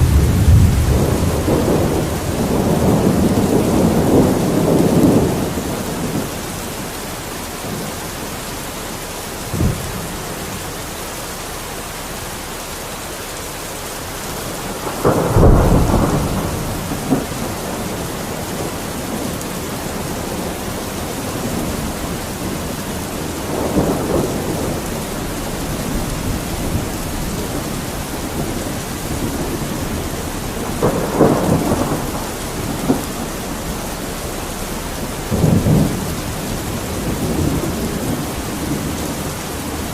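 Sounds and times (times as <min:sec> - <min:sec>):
low rumbles: 0:00.0 - 0:07.0
rain falling: 0:00.0 - 0:39.9.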